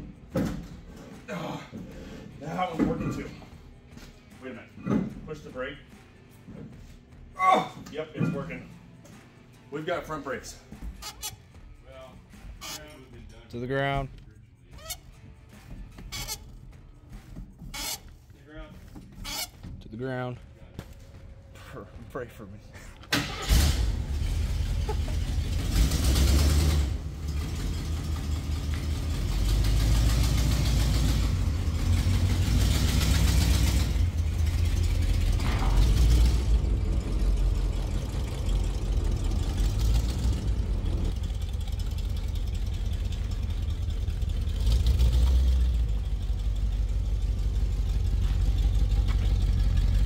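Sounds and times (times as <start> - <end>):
car engine rumbling and revving: 23.0 - 50.0.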